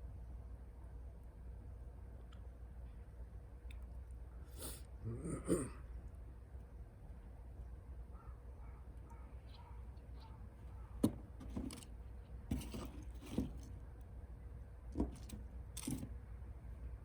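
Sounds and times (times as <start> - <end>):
rustling and scraping handling noises: 10.8 - 13.8, 14.9 - 16.2.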